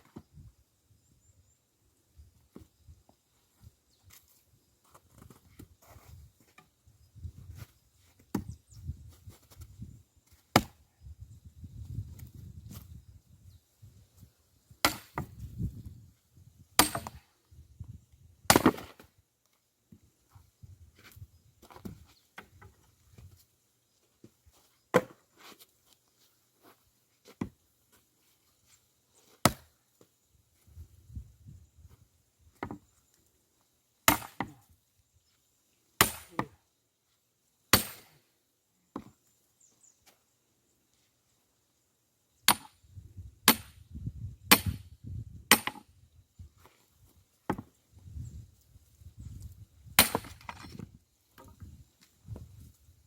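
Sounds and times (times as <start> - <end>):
axe splitting logs: 10.5 - 10.8, 14.8 - 15.4, 16.8 - 17.2, 18.5 - 19.1, 24.9 - 25.2, 29.4 - 29.8, 32.6 - 32.8, 34.0 - 34.7, 36.0 - 36.6, 37.7 - 38.2, 42.4 - 42.8, 43.4 - 43.8, 44.5 - 44.8, 45.5 - 45.9, 47.4 - 47.7, 49.9 - 50.8.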